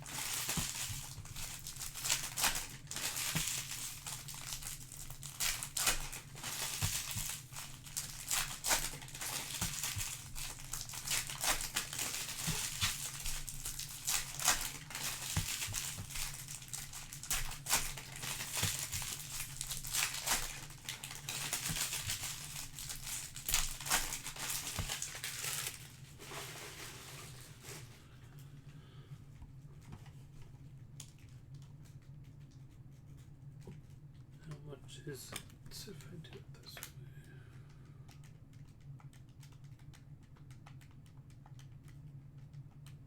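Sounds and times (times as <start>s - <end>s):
card pack wrappers crinkling: 0.0s - 28.1s.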